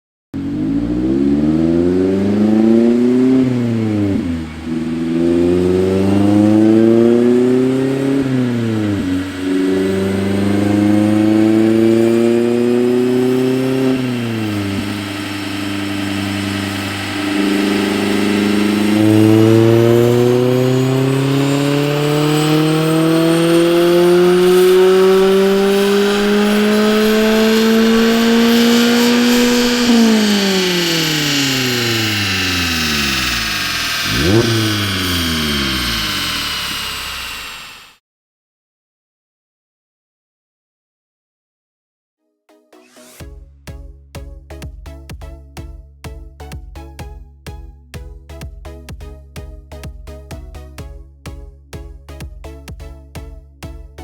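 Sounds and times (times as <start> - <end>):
car engine revving on dyno: 0.4 - 38.0.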